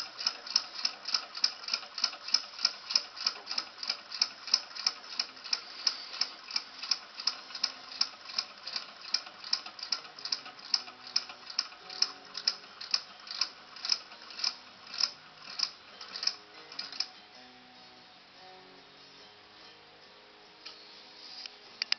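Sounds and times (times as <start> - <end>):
model engine mechanism clicking: 0.0 - 17.1.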